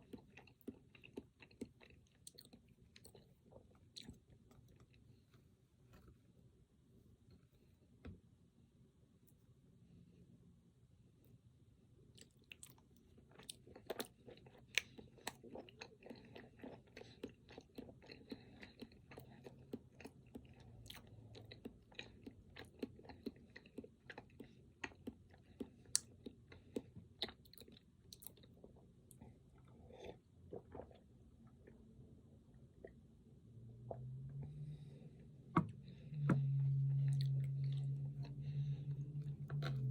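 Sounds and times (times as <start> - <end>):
chewing with wet mouth clicks: 0.0 - 5.0, 12.1 - 31.0.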